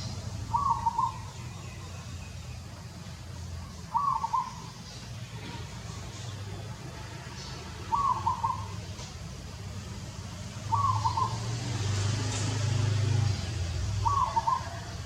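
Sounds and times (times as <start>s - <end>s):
bird cooing: 0.5s - 1.3s, 3.9s - 4.7s, 7.9s - 8.8s, 10.7s - 11.4s, 14.0s - 15.0s.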